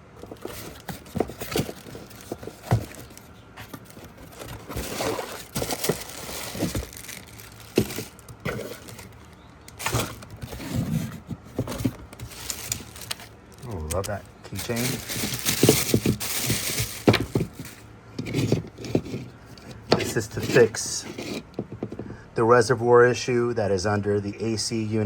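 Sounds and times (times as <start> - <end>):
packaging crinkling and tearing: 0.0 - 17.8.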